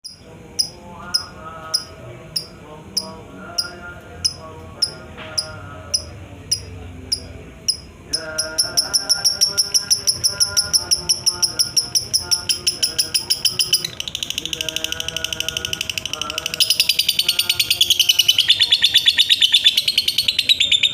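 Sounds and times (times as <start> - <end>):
lovebird chirping: 5.4 - 20.9.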